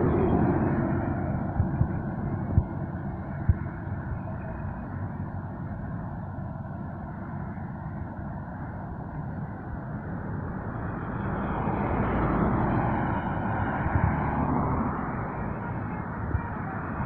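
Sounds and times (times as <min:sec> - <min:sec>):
truck passing: 0:00.0 - 0:06.4, 0:10.0 - 0:17.0.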